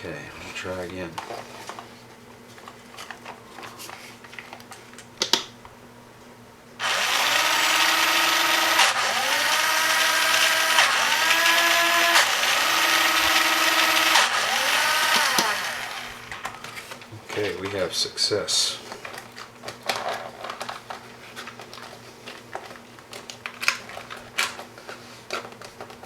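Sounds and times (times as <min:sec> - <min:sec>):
small electric motors whining: 0:06.8 - 0:16.5.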